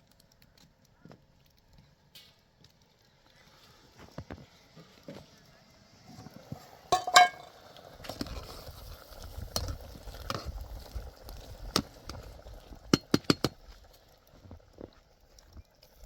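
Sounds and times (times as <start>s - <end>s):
hard objects clinking and knocking: 7.0s - 7.5s
loud ringing clink: 7.0s - 7.5s.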